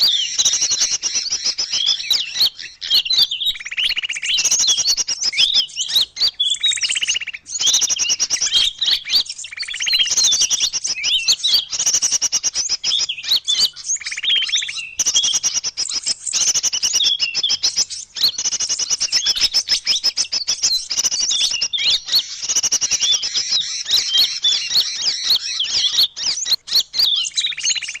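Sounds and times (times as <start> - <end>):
lower bird call: 0.0 - 28.0
songbirds chirping and twittering: 0.0 - 28.0.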